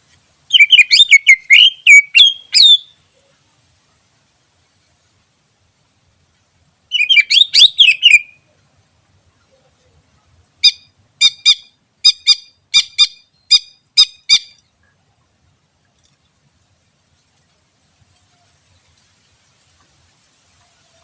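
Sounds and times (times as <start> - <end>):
bird chattering and calling: 0.5 - 3.0, 6.9 - 8.4, 10.6 - 15.0.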